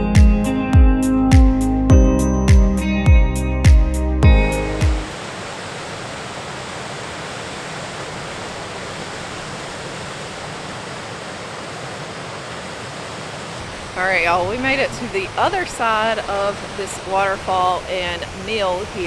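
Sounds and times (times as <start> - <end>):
guitar music: 0.0 - 5.2
waterfall rushing: 4.5 - 19.0.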